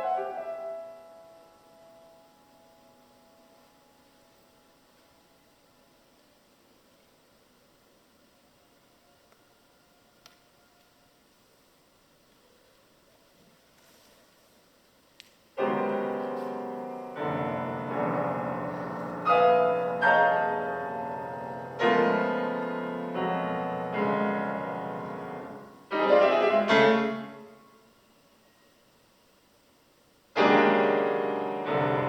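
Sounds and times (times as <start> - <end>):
piano chords ringing: 0.0 - 6.2, 15.6 - 28.1, 30.4 - 32.0.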